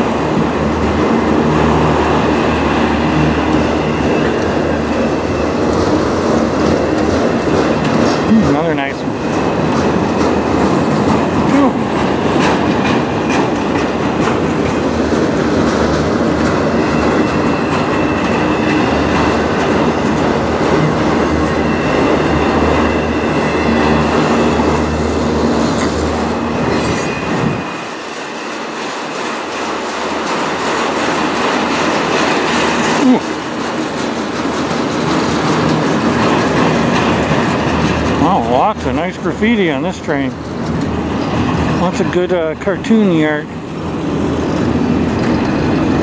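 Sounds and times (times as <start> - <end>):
steel wheels rumbling on track: 0.0 - 46.0
high wheel squeal: 2.5 - 5.6, 16.7 - 20.0, 21.3 - 28.8.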